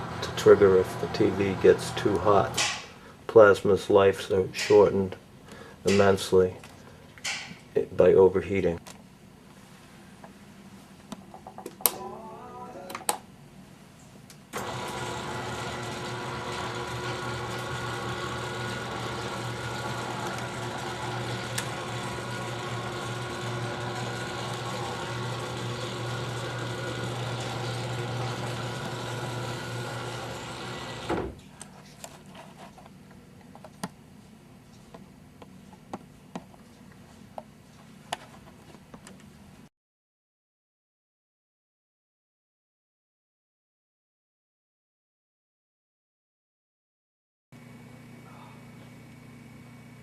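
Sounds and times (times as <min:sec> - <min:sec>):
electric motor running: 0:00.0 - 0:02.6, 0:14.6 - 0:31.3
motor stopping with a clunk: 0:14.6 - 0:31.4.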